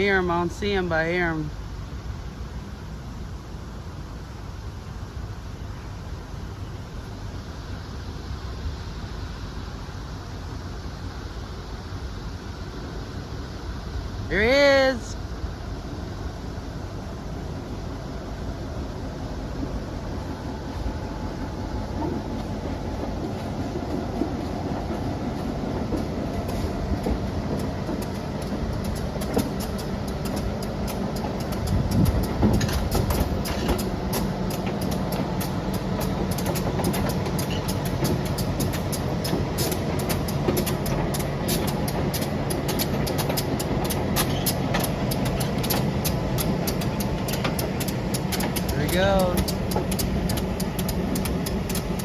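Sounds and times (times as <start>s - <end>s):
diesel locomotive engine droning: 0.0s - 52.0s
wheels clicking over rail joints: 19.4s - 52.0s.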